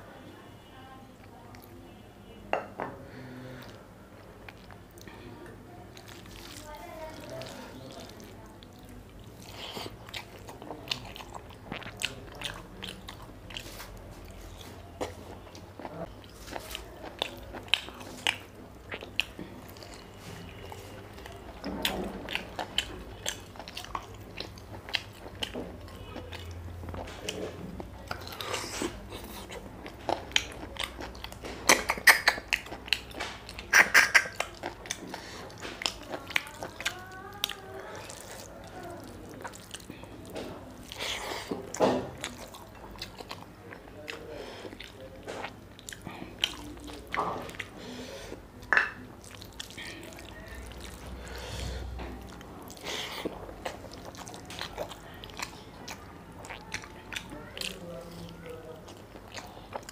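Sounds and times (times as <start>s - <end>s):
close-miked chewing and biting: 5.9s - 59.9s
lip and tongue clicks: 31.7s - 35.0s.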